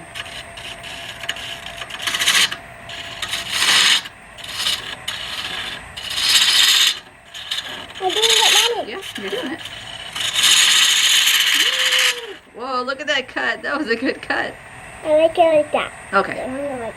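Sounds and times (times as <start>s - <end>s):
turning tool cutting wood: 0.0s - 13.3s
faint lathe hum: 0.0s - 16.9s.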